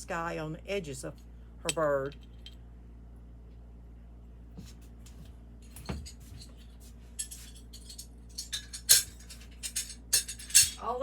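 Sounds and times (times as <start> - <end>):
ceramic pieces clinking: 7.2 - 10.8.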